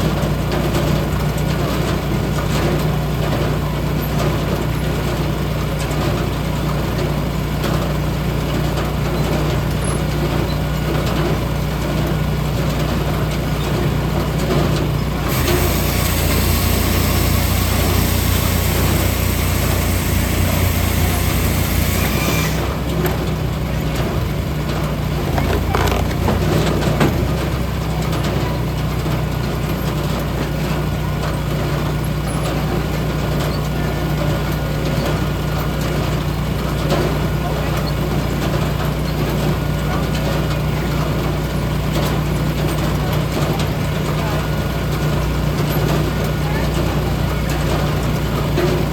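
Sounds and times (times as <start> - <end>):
large engine running: 0.0 - 48.9
loud hiss: 15.3 - 22.8.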